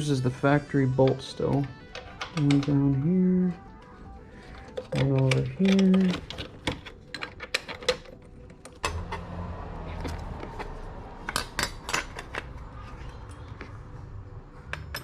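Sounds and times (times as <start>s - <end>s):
hand tools clinking on bolts: 1.0s - 9.3s, 10.0s - 12.6s, 14.7s - 15.0s.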